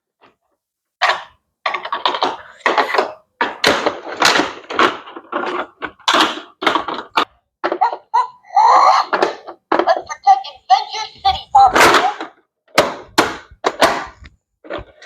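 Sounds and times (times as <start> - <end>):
plastic toy pieces clattering: 1.1 - 7.8.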